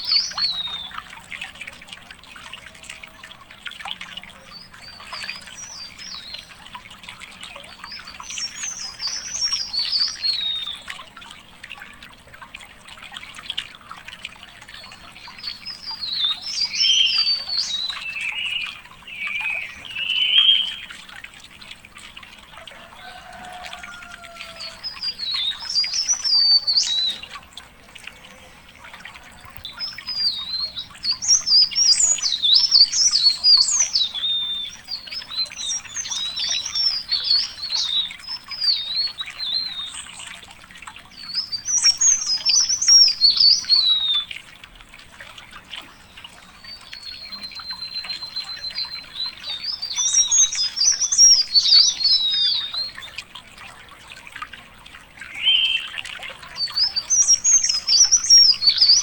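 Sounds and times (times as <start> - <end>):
songbird warbling: 0.0 - 1.5, 7.4 - 10.9, 14.7 - 21.3, 22.0 - 40.4, 41.0 - 44.4, 45.7 - 53.4, 55.2 - 59.0.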